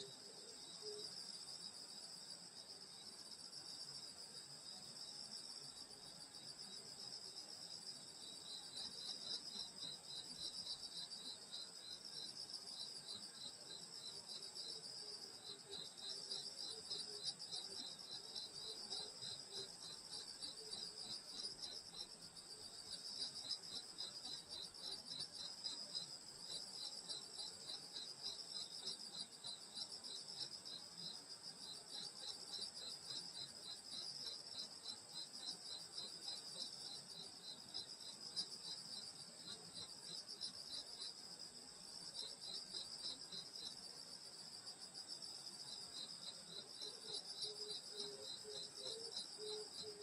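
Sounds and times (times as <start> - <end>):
insect chirping rhythmically: 0.0 - 50.0
high-pitched insect trill: 0.2 - 50.0.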